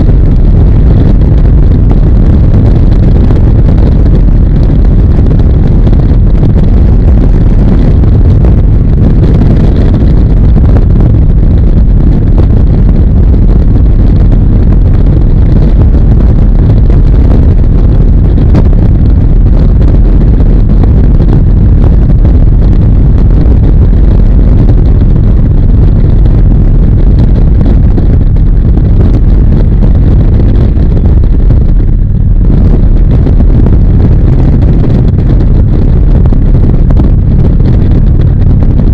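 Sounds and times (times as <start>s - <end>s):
motorcycle engine: 0.0s - 10.4s
wind buffeting microphone: 0.0s - 38.9s.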